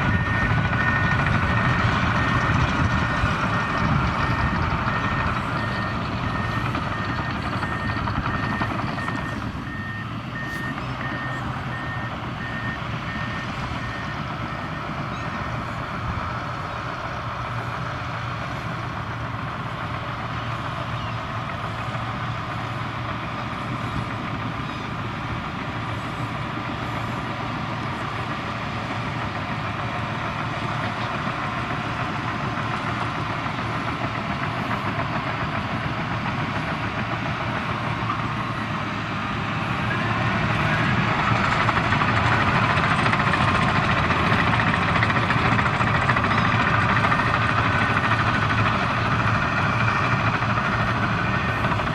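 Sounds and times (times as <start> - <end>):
reversing alarm beeps: 0.0 - 15.6, 39.8 - 48.8
bulldozer diesel engine running: 0.0 - 51.9.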